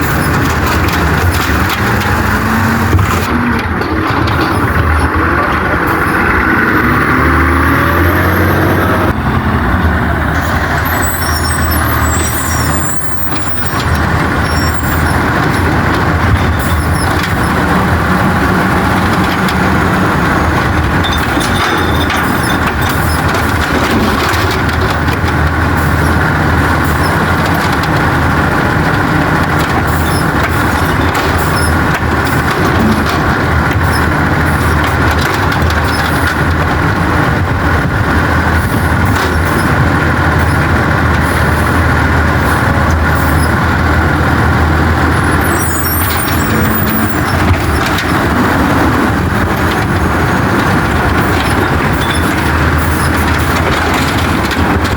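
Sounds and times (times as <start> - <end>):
garbage truck engine revving: 0.0 - 54.9
high squeaks: 10.8 - 23.8, 45.1 - 48.8.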